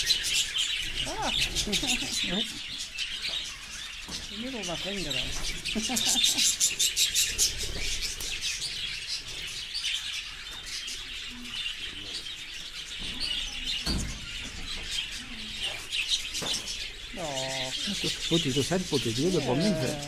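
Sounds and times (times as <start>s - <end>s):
budgerigars chattering and chirping: 0.0s - 20.0s.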